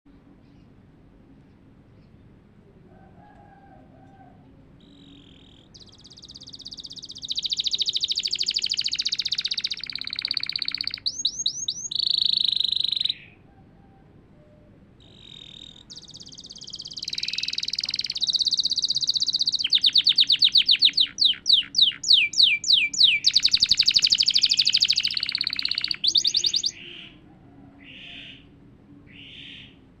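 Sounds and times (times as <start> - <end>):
canary singing with trills: 4.8 - 13.4, 15.0 - 28.5.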